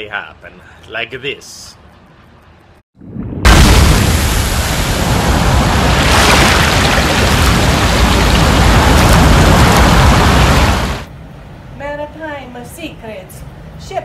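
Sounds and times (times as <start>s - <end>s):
water gushing and spraying: 4.2s - 11.1s.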